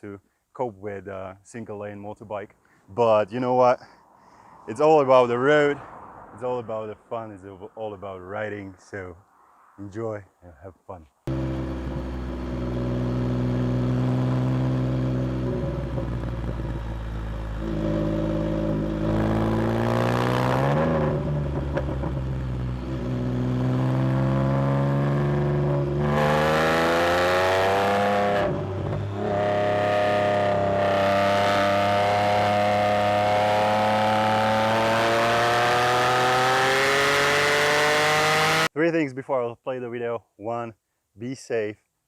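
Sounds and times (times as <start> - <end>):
motorcycle engine revving: 11.3 - 38.7.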